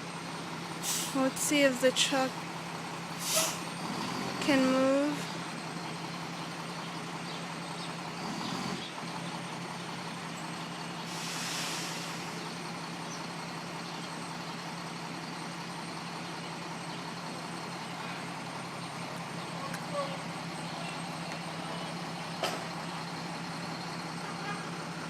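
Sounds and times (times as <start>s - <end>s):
truck engine droning: 0.0s - 25.0s
short hiss: 3.2s - 3.6s, 11.1s - 12.2s.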